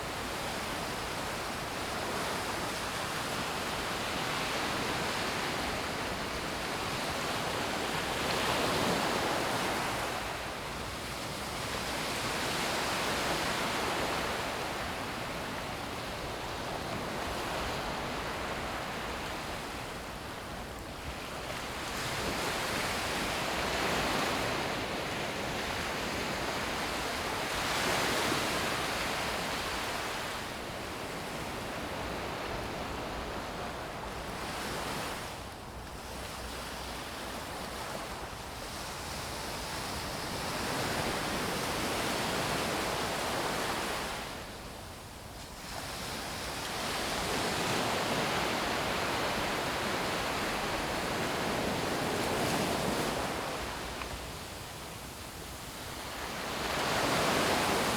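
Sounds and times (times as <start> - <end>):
waves breaking on sandy beach: 36.1 - 57.9.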